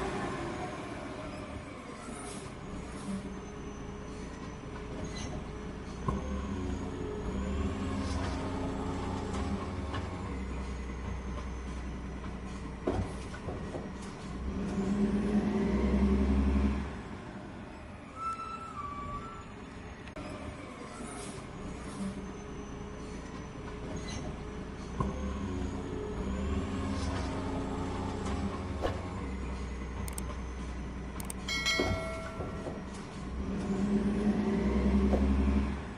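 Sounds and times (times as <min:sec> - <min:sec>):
heavy machine engine running: 0:20.3 - 0:35.9
metallic clang and ringing: 0:31.5 - 0:33.1
sharp knocks: 0:31.6 - 0:32.9.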